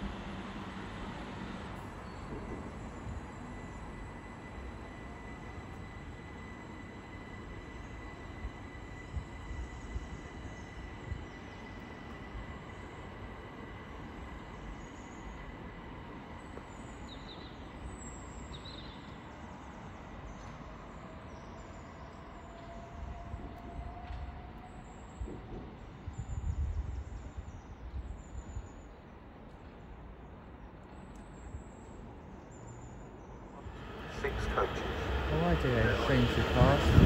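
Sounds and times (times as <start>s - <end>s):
train rail rumble: 0.0s - 17.0s, 33.5s - 37.0s.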